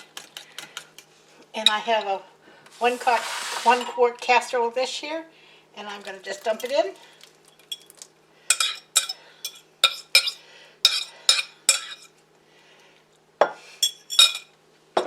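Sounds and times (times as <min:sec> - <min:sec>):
utensil scraping a mixing bowl: 0:02.7 - 0:04.0.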